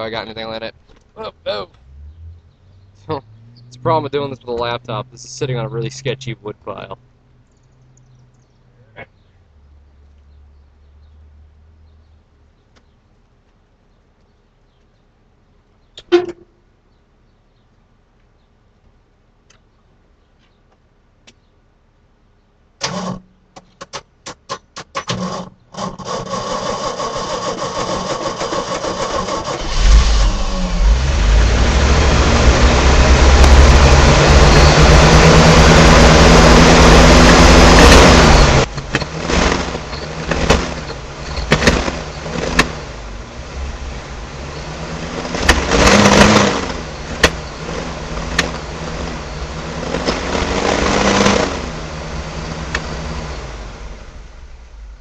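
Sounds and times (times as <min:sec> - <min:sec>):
car engine revving: 0:00.0 - 0:09.1, 0:26.0 - 0:55.0
engine starter cranking: 0:22.8 - 0:23.2, 0:24.3 - 0:31.4, 0:37.4 - 0:42.8.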